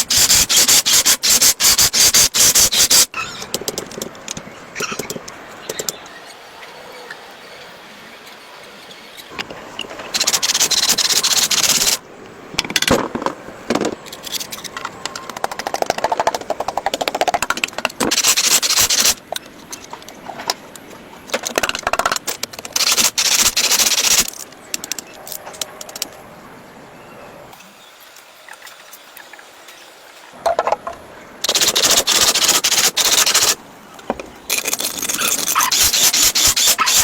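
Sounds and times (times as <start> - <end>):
rapid clicking: 10.1 - 12.0, 13.8 - 19.9, 21.3 - 26.1, 31.4 - 33.6
short rasps: 34.5 - 37.0.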